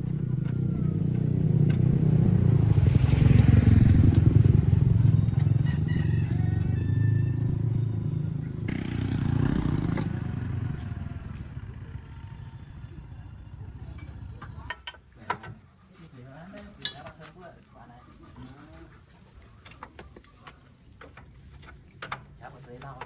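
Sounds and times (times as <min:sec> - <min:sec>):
vehicle engine running: 0:00.0 - 0:14.8.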